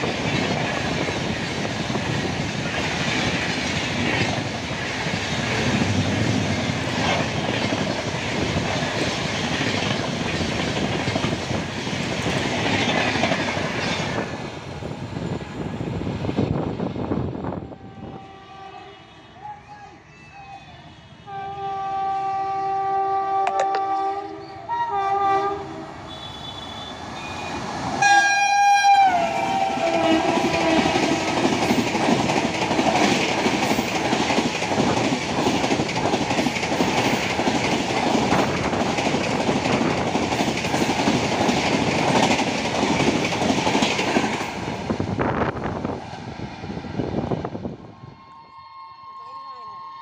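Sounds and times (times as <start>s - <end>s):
train wheel clatter: 0.0s - 14.6s, 29.2s - 45.6s
locomotive horn blasts: 17.6s - 19.4s, 21.1s - 31.2s, 48.0s - 50.0s.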